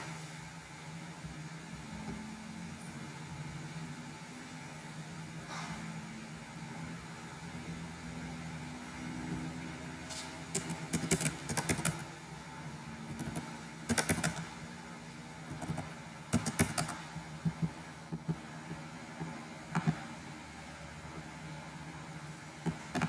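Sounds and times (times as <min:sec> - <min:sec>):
computer keyboard typing: 0:10.5 - 0:12.0, 0:13.1 - 0:14.5, 0:15.5 - 0:17.0.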